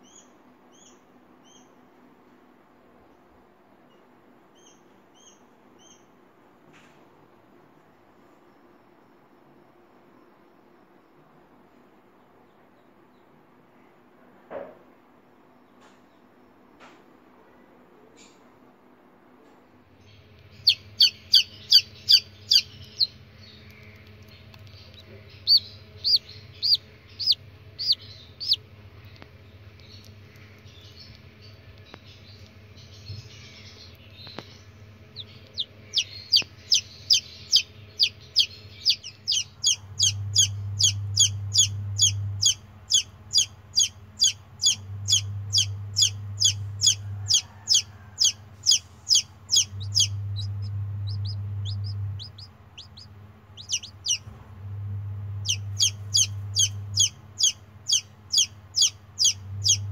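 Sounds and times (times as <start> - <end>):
chick peeping: 20.0 - 59.9
low hum: 20.0 - 59.9.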